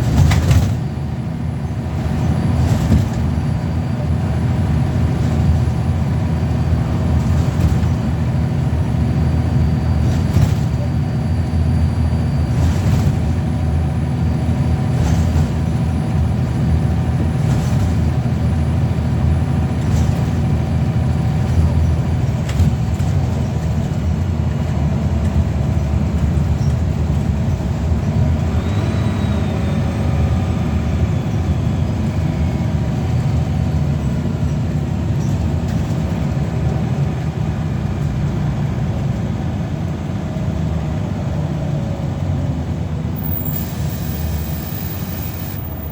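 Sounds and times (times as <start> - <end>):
diesel bus engine running: 0.0 - 45.9
faint falling whine: 43.2 - 45.9.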